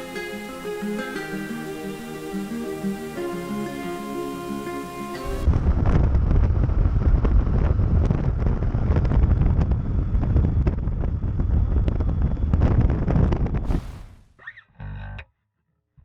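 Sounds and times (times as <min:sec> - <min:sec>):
wind buffeting microphone: 0:05.4 - 0:14.2.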